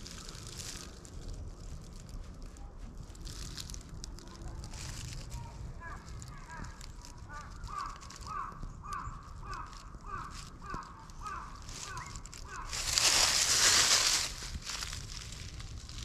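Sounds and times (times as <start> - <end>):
rustling noise: 0.0 - 16.0
bird calling in hooked notes: 5.9 - 12.8.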